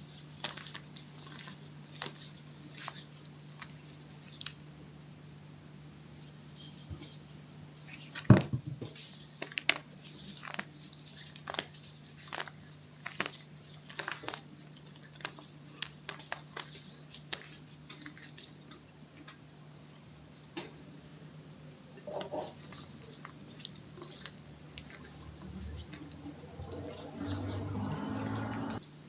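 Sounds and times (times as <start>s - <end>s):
chalk being crunched: 0.0s - 4.6s, 8.9s - 18.8s, 22.5s - 28.8s.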